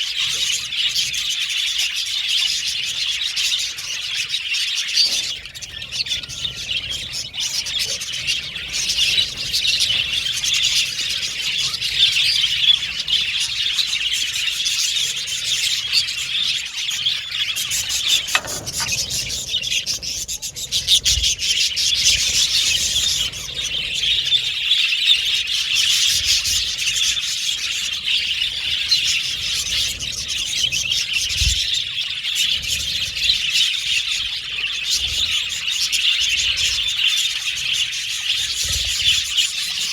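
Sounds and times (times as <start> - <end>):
budgerigars chirping: 0.1 - 30.3.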